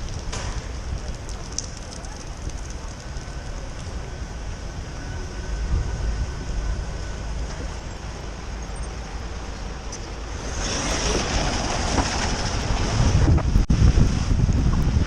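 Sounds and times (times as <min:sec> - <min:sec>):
car road noise rumble and hiss: 0:00.0 - 0:15.0.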